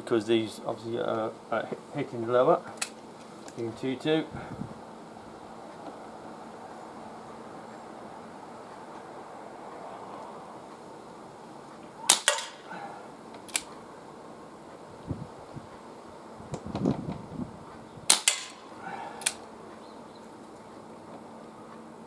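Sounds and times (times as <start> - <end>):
air revolver shot crack: 12.0 - 12.8, 18.1 - 19.4
light mechanical click: 19.2 - 19.9.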